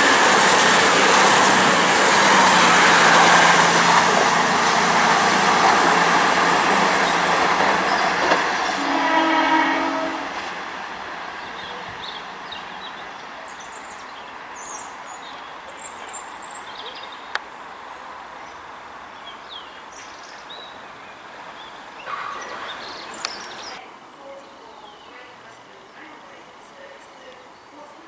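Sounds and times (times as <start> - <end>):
diesel train rumble: 0.0 - 14.6
small birds chirping: 11.3 - 17.4, 19.2 - 23.8.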